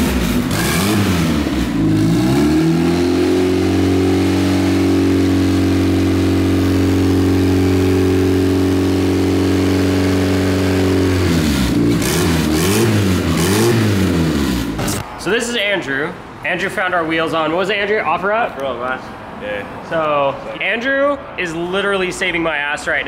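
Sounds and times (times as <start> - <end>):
car engine revving: 0.0 - 15.1.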